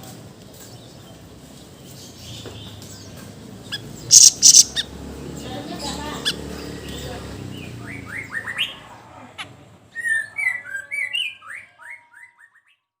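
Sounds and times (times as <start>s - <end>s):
songbird whistling: 4.1s - 4.8s.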